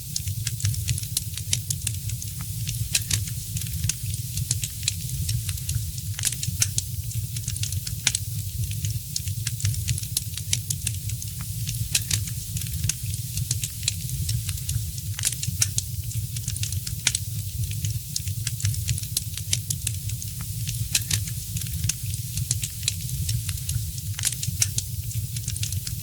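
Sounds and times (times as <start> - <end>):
fire crackling in fireplace: 0.0 - 26.0.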